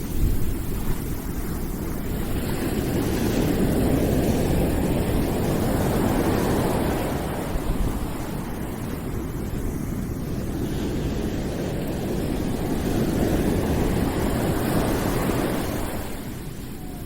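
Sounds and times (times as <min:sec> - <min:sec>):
deep steady rushing noise: 0:00.0 - 0:17.0.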